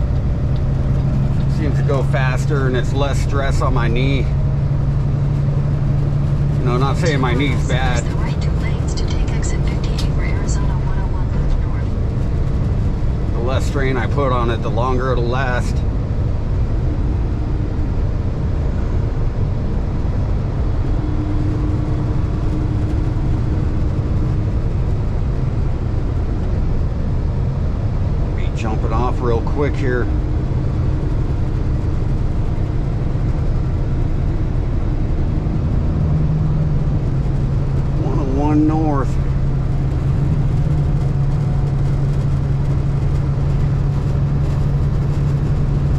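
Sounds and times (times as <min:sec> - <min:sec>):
steady hum: 0:00.0 - 0:45.9
truck engine and road noise: 0:00.0 - 0:45.9.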